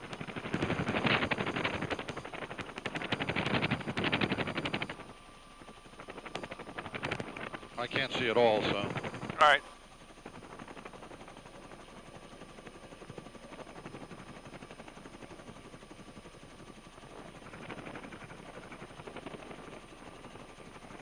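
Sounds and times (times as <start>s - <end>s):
helicopter rotor and engine: 0.0s - 21.0s.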